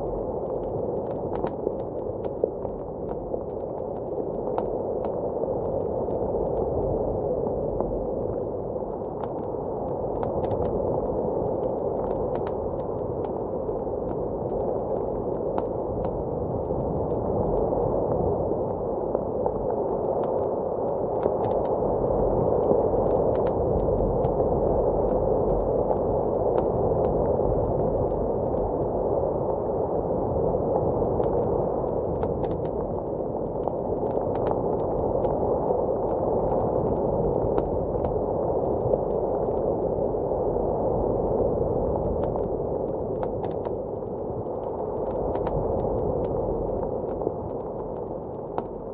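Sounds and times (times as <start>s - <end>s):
muffled blizzard wind: 0.0s - 48.9s
wood fire crackling and popping: 19.5s - 29.2s, 30.8s - 40.0s, 42.0s - 48.9s.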